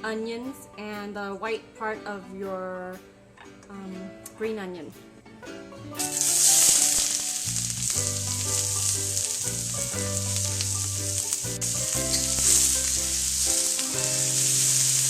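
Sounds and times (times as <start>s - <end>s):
vegetables sizzling in a wok: 6.0s - 15.0s.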